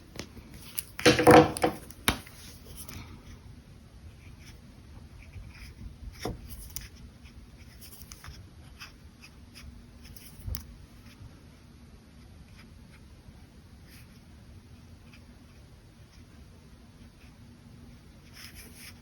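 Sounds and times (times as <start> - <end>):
brush pen scratching on paper: 18.2 - 19.0.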